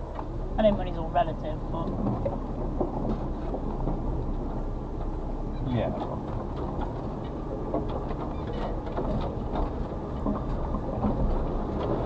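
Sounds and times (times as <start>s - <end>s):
truck engine rumbling: 0.0s - 12.0s
small knocks and rattles: 5.9s - 12.0s.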